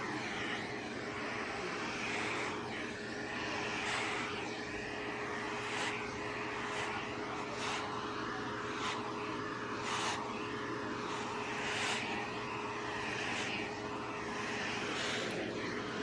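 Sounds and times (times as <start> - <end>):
vacuum rushing hiss: 0.0 - 16.0.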